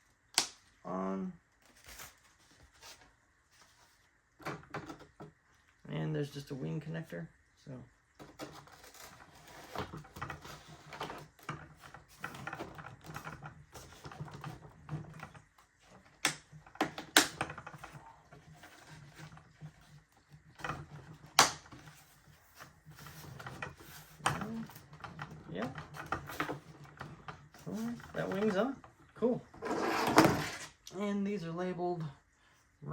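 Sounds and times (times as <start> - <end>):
sharp plastic snaps: 0.3 - 0.6
plastic clicks and knocks: 9.7 - 22.0.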